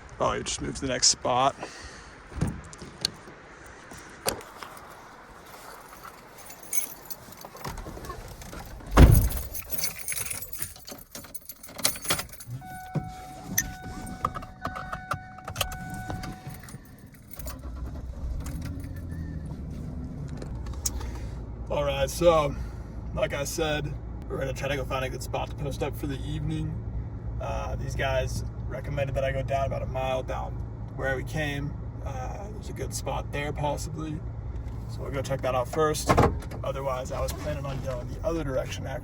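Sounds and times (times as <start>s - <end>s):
truck engine starting and idling: 1.7s - 39.0s
car door shutting: 2.3s - 3.4s, 7.4s - 9.6s, 11.2s - 21.3s, 35.8s - 38.0s
keys jangling: 4.6s - 13.0s, 14.7s - 17.7s.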